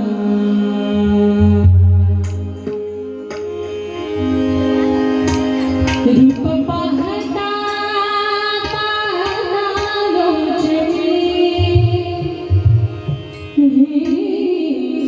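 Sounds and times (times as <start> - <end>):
drum strokes: 8.6 - 13.5.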